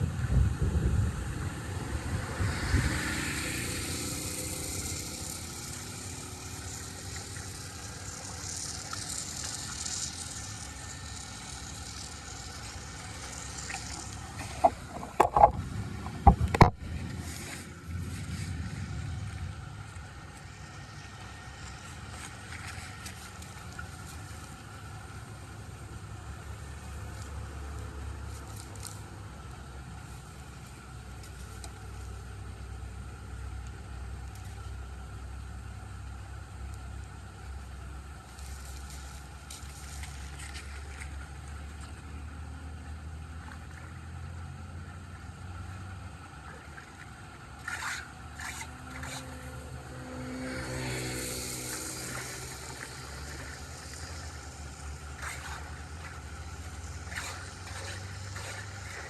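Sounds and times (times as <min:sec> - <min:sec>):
water rushing through a drain: 0:00.0 - 0:16.8, 0:45.4 - 0:59.0.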